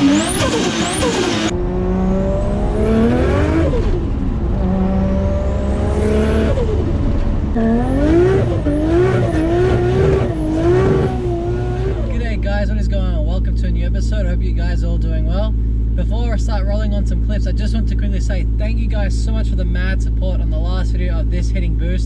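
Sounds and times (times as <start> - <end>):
car engine revving through gears: 0.0 - 12.4.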